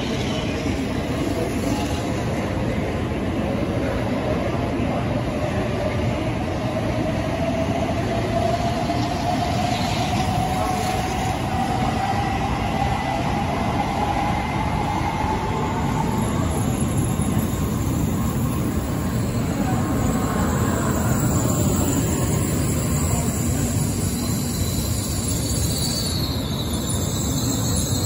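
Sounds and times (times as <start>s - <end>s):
train rushing rumble: 0.0s - 28.0s
train whine rising in pitch: 7.2s - 28.0s.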